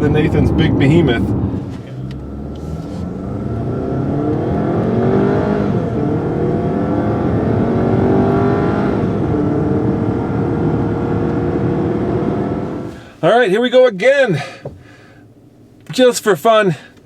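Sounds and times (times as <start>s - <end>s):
car engine accelerating: 0.0s - 13.2s.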